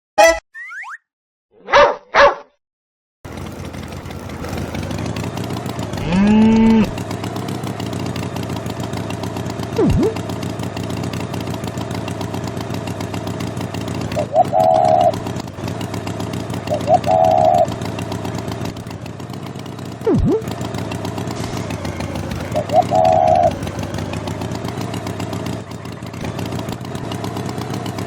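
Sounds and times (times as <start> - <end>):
dog barks: 1.6 - 2.6
engine-like running noise: 3.3 - 28.0.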